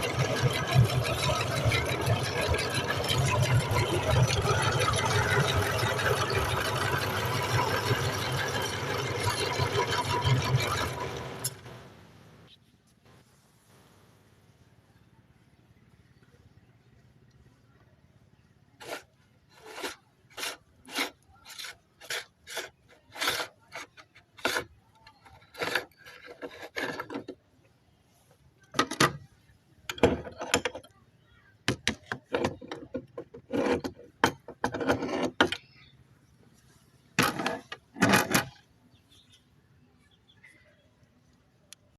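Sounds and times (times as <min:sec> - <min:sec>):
meat grinder grinding tomatoes: 0:00.0 - 0:11.5.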